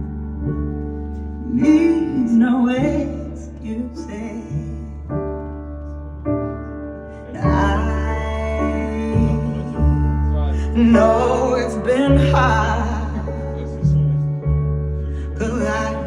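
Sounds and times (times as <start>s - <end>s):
person singing: 1.4s - 5.1s, 7.2s - 16.0s.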